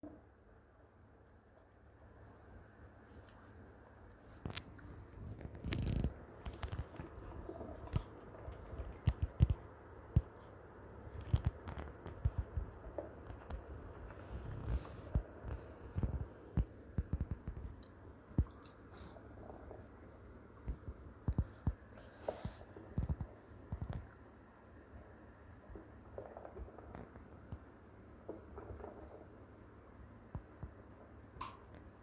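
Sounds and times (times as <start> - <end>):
small clicks knocks and scraping: 4.2 - 19.9, 20.6 - 24.2, 25.7 - 29.4.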